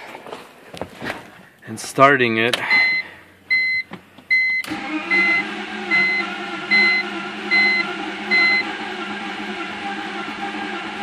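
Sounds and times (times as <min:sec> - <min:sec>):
starter cranking engine: 0:04.7 - 0:11.0.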